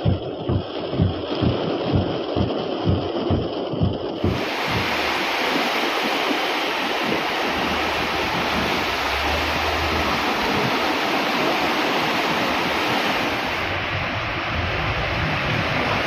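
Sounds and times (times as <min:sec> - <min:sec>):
torrential rain: 0:00.0 - 0:16.0
water running over street: 0:00.4 - 0:16.0
cars wading through floodwater: 0:04.2 - 0:16.0
low engine hum: 0:07.2 - 0:16.0.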